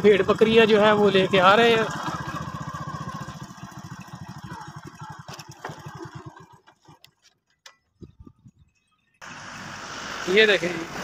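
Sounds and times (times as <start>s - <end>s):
motorcycle engine stopping: 0.0s - 8.3s.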